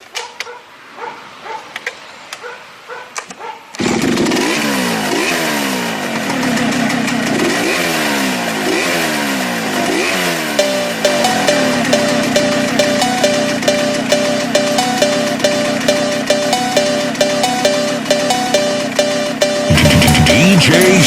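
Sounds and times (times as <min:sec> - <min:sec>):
chainsaw revving: 0:03.8 - 0:14.4, 0:18.8 - 0:21.0.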